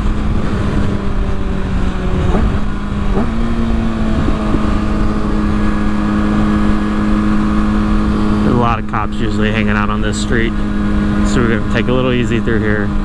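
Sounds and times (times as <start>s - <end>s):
wind noise on microphone: 0.0s - 8.8s
motorcycle engine cruising: 0.0s - 13.0s.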